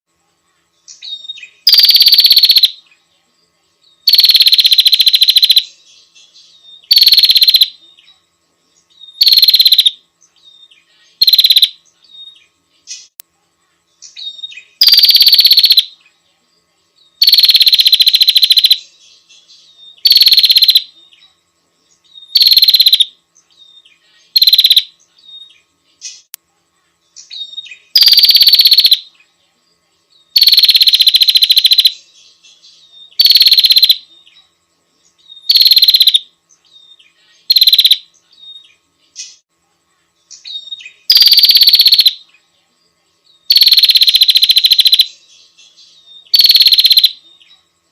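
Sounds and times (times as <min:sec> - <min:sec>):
faint bird chirps: 0:00.1 - 0:47.9
bird buzzy rattling trill: 0:00.9 - 0:02.8, 0:04.0 - 0:05.8, 0:06.6 - 0:08.1, 0:09.0 - 0:13.2, 0:14.0 - 0:16.0, 0:17.2 - 0:19.0, 0:20.0 - 0:21.0, 0:22.0 - 0:26.3, 0:27.2 - 0:29.1, 0:30.3 - 0:34.1, 0:35.2 - 0:39.5, 0:40.4 - 0:42.3, 0:43.5 - 0:45.2, 0:46.3 - 0:47.2.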